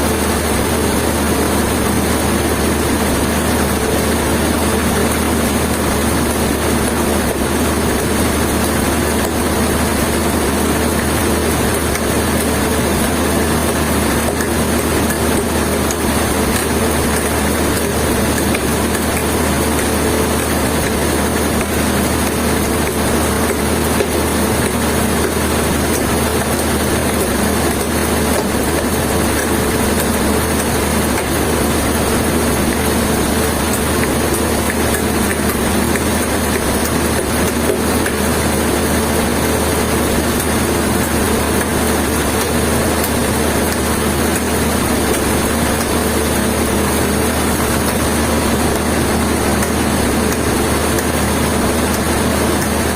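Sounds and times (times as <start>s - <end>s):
engine droning steadily: 0.0s - 52.9s.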